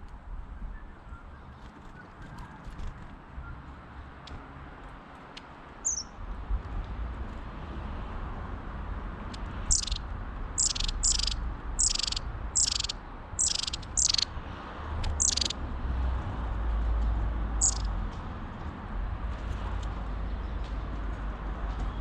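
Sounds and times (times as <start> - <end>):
small bird chirping: 5.8 - 6.2, 9.6 - 14.3, 15.0 - 15.6, 17.6 - 17.9.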